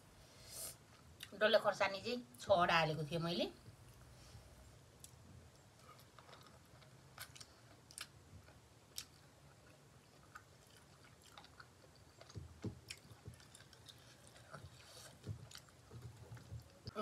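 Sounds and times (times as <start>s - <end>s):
person chewing: 5.0s - 17.0s.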